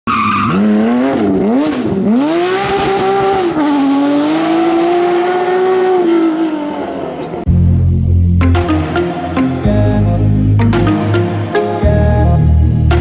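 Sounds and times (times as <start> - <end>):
rally car engine at full throttle: 0.1 - 7.5.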